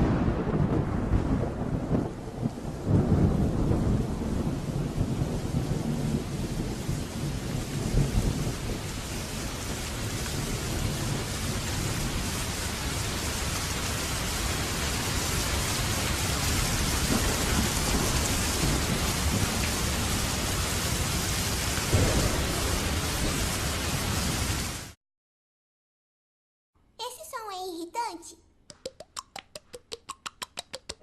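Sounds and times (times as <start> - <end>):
rumbling thunder: 0.0 - 13.4, 14.1 - 25.0
heavy rain falling: 0.0 - 25.0.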